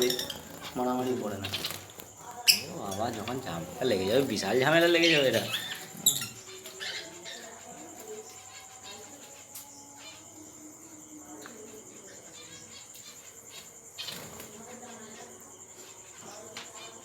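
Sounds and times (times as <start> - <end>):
high-pitched chirring: 0.0 - 7.0
caged birds chirping and twittering: 0.0 - 17.0.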